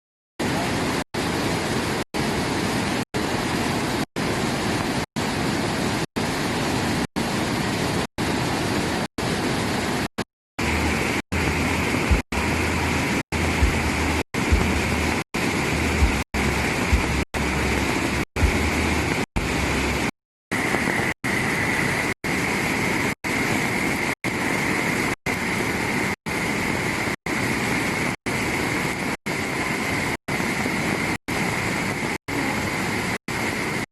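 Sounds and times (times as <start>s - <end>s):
waterfall roaring: 0.4s - 33.8s
low rumble with knocks: 13.6s - 13.9s.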